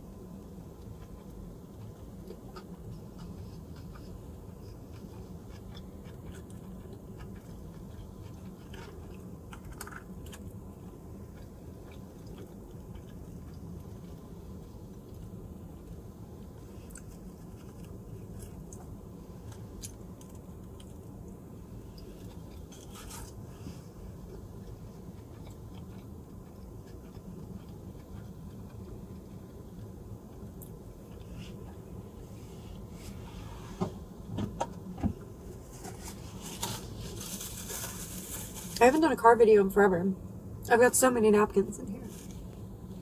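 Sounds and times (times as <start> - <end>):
person chewing: 0.8 - 21.2, 24.2 - 32.0.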